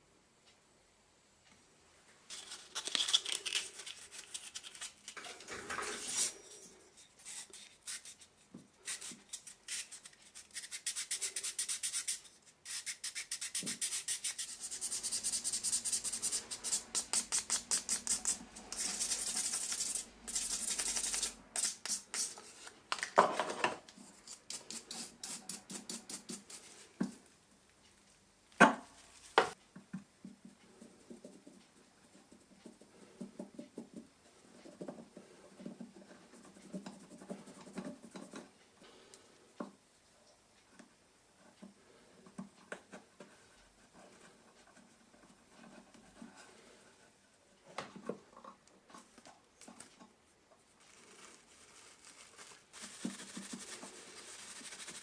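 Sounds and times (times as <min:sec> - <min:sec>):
hand rubbing strokes: 0:50.8 - 0:55.0.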